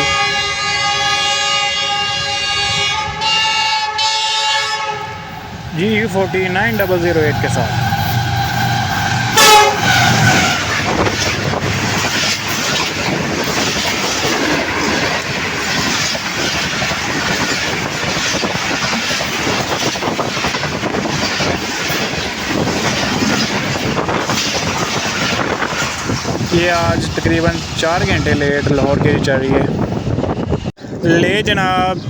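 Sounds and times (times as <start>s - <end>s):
locomotive horn: 0.0s - 5.4s, 7.5s - 10.8s
train coaches rushing by: 0.0s - 32.0s
wheels clattering over rail joints: 9.5s - 29.1s.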